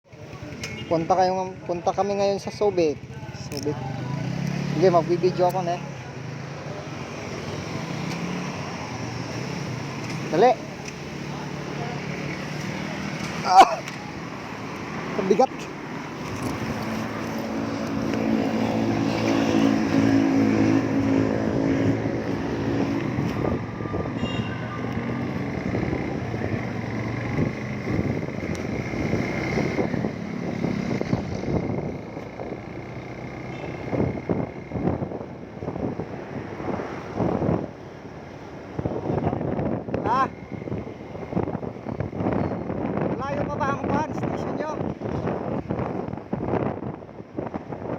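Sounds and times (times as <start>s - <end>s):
wind and road noise: 0.0s - 47.9s
motorcycle engine: 0.1s - 35.9s
wind buffeting microphone: 14.2s - 47.9s.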